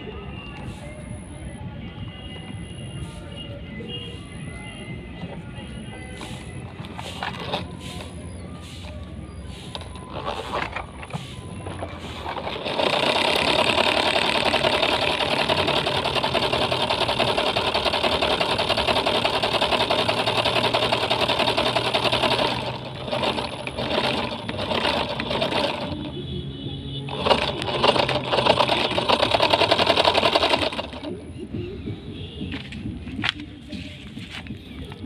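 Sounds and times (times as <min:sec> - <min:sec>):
tractor engine clattering: 0:05.3 - 0:31.6.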